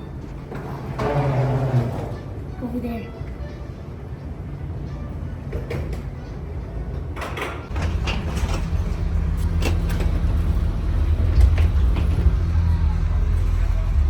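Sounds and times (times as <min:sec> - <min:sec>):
low engine rumble: 0:07.7 - 0:14.0.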